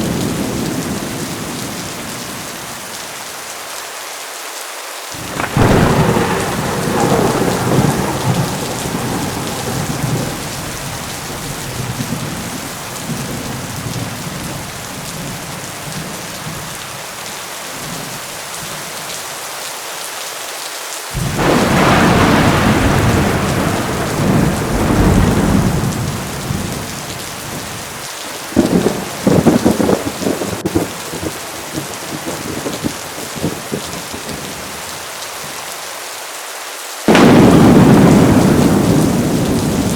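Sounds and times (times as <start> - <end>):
rolling thunder: 0.0 - 2.8, 5.2 - 16.9, 21.2 - 34.7, 37.1 - 39.9
heavy rain: 0.0 - 39.9
sharp thunder cracks: 5.2 - 15.5, 21.2 - 27.9, 37.1 - 39.9.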